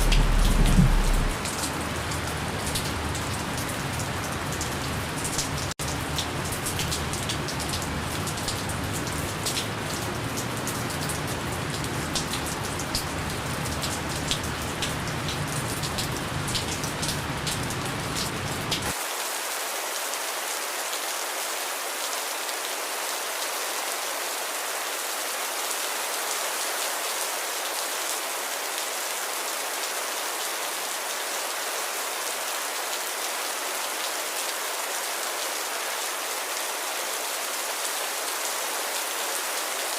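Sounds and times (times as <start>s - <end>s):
low rumble: 0.0s - 1.5s
sharp raindrop taps: 0.0s - 1.5s
gentle rain falling: 0.0s - 39.9s.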